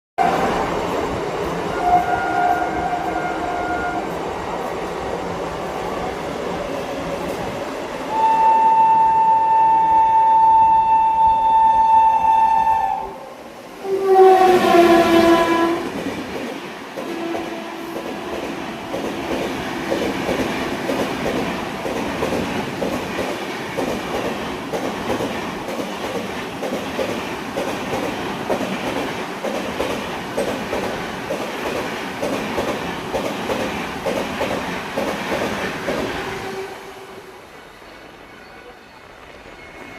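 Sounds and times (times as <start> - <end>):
lower-pitched train horn: 0.2 - 0.6, 1.6 - 4.2, 8.1 - 16.0, 17.0 - 19.3, 36.2 - 37.5
locomotive horn blast: 1.7 - 4.2, 8.1 - 15.9, 17.0 - 18.9, 36.3 - 37.4
train wheels clattering over rail joints: 15.9 - 36.3.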